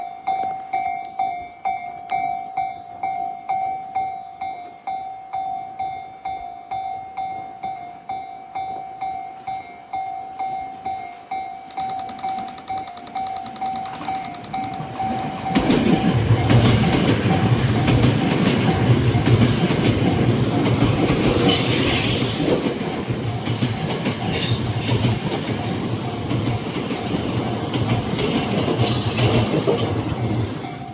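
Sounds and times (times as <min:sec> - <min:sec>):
level crossing bell ringing: 0:11.5 - 0:16.0
train wheels clattering: 0:11.7 - 0:30.9
high wheel squeal: 0:21.3 - 0:22.5.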